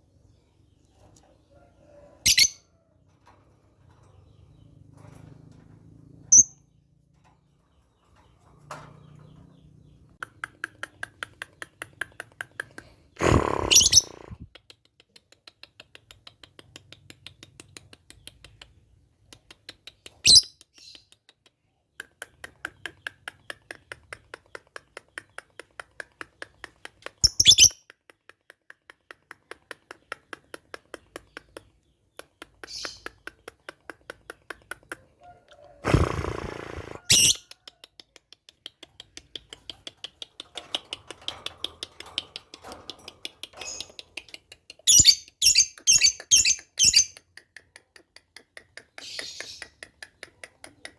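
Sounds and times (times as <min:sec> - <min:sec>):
lovebird chirping: 0:02.2 - 0:02.6, 0:13.2 - 0:14.4, 0:27.2 - 0:27.8, 0:35.9 - 0:37.6, 0:44.8 - 0:47.2.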